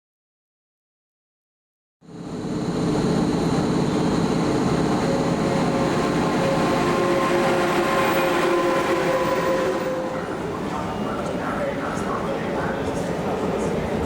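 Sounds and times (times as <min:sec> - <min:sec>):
train rumbling: 0:02.1 - 0:14.0
humming tones: 0:02.7 - 0:10.6.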